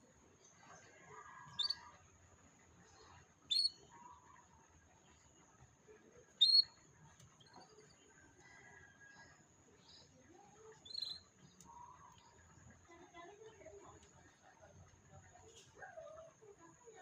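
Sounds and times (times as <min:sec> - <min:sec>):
soft bird twittering: 0:01.3 - 0:02.0, 0:02.9 - 0:04.4, 0:06.4 - 0:06.8, 0:09.8 - 0:12.4
canary chirping: 0:01.5 - 0:01.9, 0:03.5 - 0:04.0, 0:06.4 - 0:06.8, 0:10.7 - 0:11.3.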